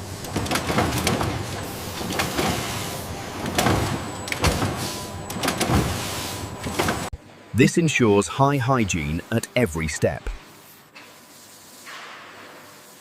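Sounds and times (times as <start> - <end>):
factory machinery running: 0.0 - 10.4
clattering knocks and clicks: 0.2 - 6.0.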